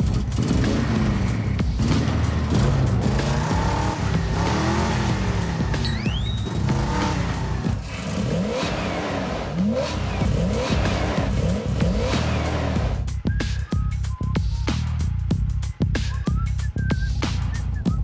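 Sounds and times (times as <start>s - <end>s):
cartoon car engine revving: 0.0s - 13.8s
rising whistle: 5.8s - 6.6s, 13.2s - 14.9s, 16.0s - 18.0s.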